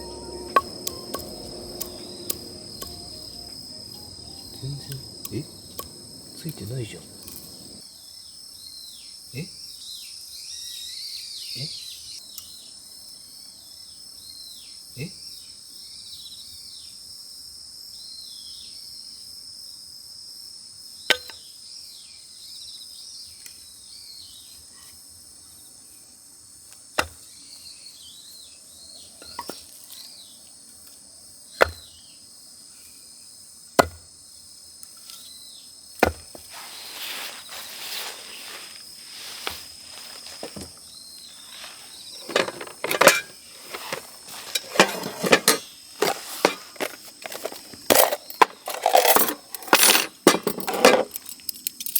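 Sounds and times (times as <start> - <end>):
insect chirring: 0.0 - 7.8, 36.2 - 44.8
rustling: 36.2 - 51.2
clattering knocks: 42.2 - 51.2.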